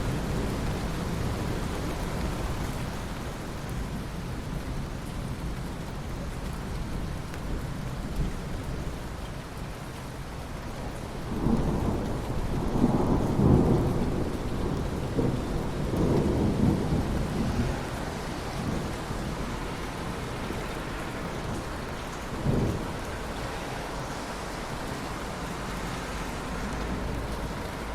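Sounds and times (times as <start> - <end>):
steady rain: 0.0 - 27.9
rolling thunder: 11.3 - 25.4.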